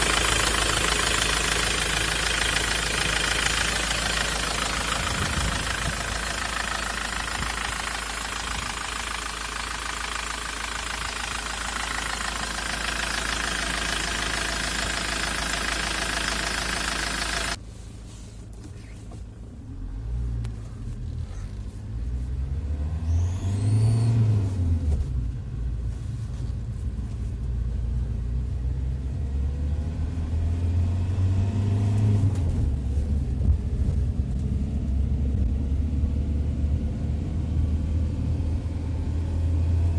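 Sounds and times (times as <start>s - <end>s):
van engine revving: 0.0s - 17.6s.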